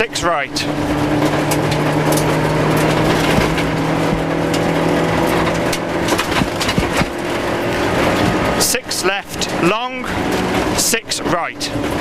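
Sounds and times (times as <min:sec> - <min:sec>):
rally car engine at high revs: 0:00.0 - 0:12.0
stones knocking against car body: 0:03.1 - 0:04.6, 0:06.0 - 0:07.2.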